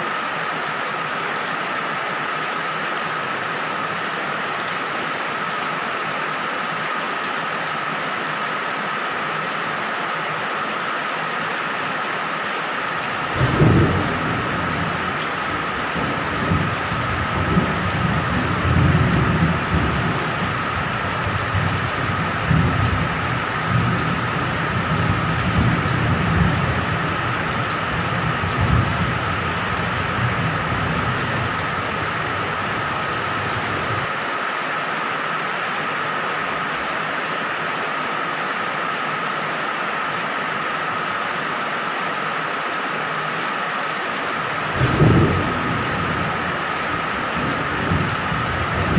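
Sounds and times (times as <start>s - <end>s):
steady rain: 0.0s - 48.9s
low rolling thunder: 13.2s - 34.1s, 44.6s - 48.9s.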